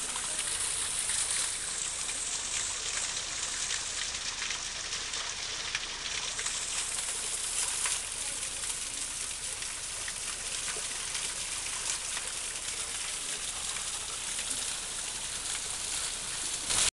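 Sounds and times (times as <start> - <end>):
waterfall rushing: 0.0 - 3.0
small water splashes: 0.0 - 16.9.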